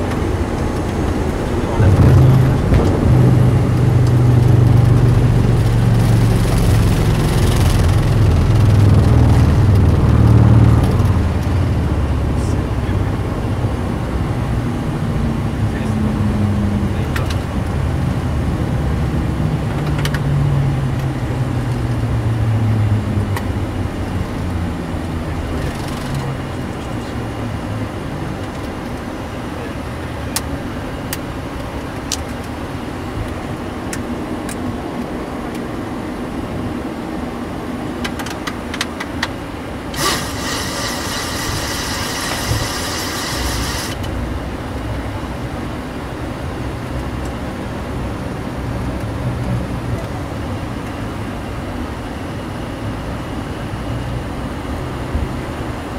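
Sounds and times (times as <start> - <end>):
jet engines winding down: 0.0 - 21.7, 22.8 - 47.6
steady cockpit hum: 0.0 - 21.7, 22.9 - 55.9
harsh buzzing: 39.9 - 44.0.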